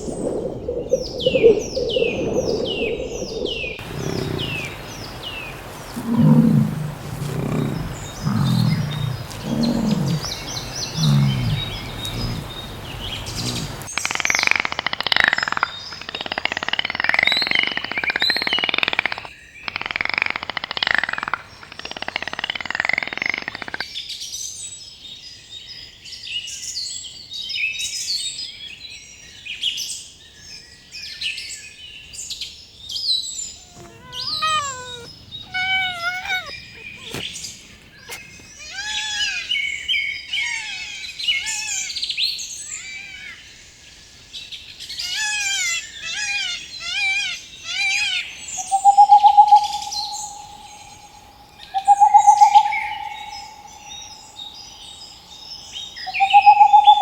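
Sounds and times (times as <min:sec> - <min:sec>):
birds chirping: 0:00.0 - 0:14.4, 0:33.2 - 0:57.0
bird call at steady pitch: 0:33.6 - 0:37.2, 0:45.0 - 0:57.0.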